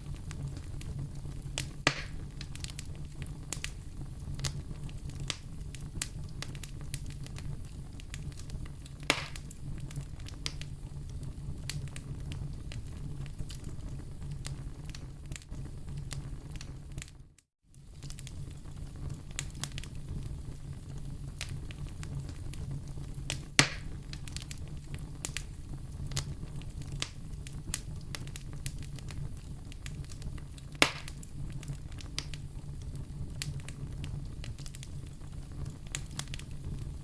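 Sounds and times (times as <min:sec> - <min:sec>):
fireplace fire crackling: 0:00.0 - 0:37.0
loud fire snaps: 0:00.0 - 0:37.0.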